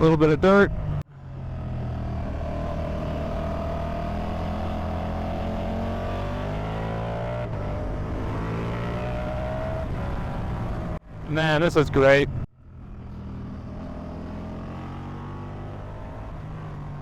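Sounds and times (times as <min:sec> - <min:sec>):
motorcycle engine accelerating: 0:00.0 - 0:11.4, 0:12.3 - 0:17.0.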